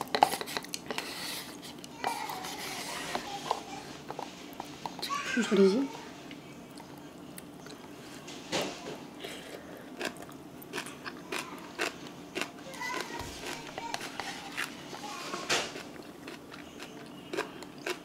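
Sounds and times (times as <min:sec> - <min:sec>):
person chewing noodles: 0:00.0 - 0:02.5, 0:09.2 - 0:15.0, 0:15.7 - 0:18.0.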